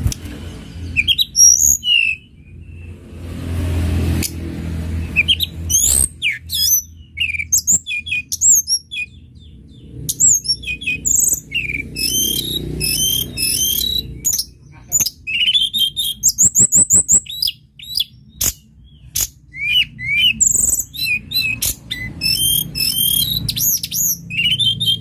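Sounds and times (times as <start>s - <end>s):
songbird chirping and trilling: 0.0s - 25.0s.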